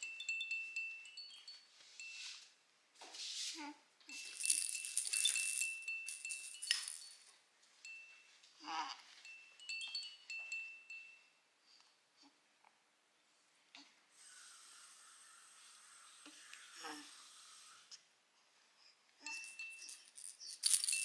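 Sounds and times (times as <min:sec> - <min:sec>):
baby toy chiming and jingling: 0:00.0 - 0:02.3, 0:04.1 - 0:11.3, 0:19.3 - 0:21.0.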